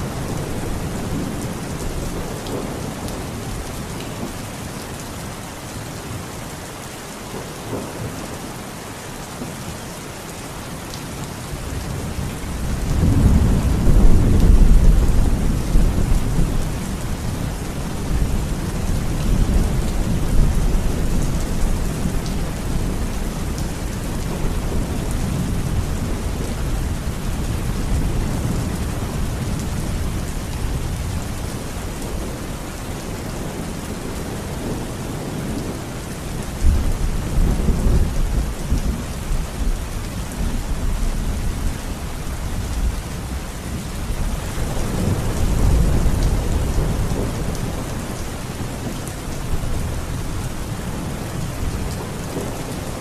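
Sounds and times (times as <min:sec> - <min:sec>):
heavy rain: 0:00.0 - 0:53.0
deep rumble of thunder: 0:11.8 - 0:53.0.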